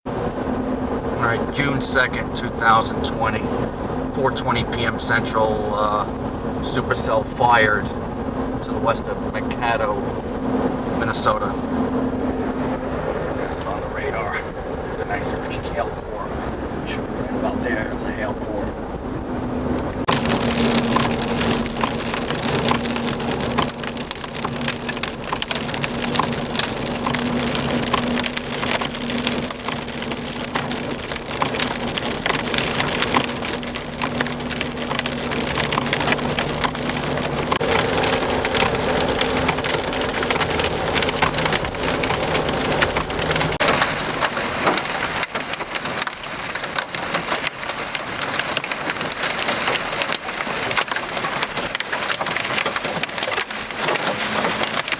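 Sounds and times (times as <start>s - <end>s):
heavy rain on a vehicle: 0.1s - 54.9s
hailstones clicking: 12.9s - 16.2s, 19.8s - 54.9s.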